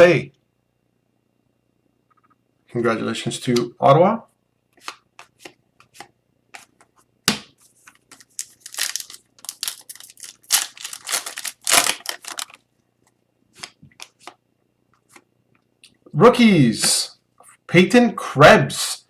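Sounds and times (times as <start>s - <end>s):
trading cards rustling and snapping: 7.8s - 12.6s.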